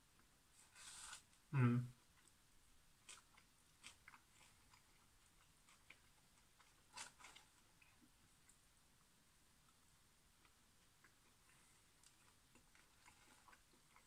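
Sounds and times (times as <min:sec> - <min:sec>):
person chewing fries: 0:03.0 - 0:08.6, 0:10.4 - 0:14.0.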